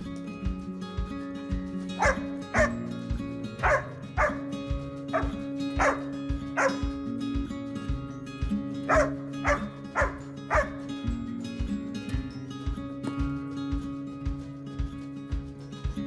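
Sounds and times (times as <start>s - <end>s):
background music with steady beat: 0.0s - 16.0s
dog barking: 2.0s - 2.8s, 3.6s - 4.5s, 5.1s - 6.9s, 8.9s - 10.8s.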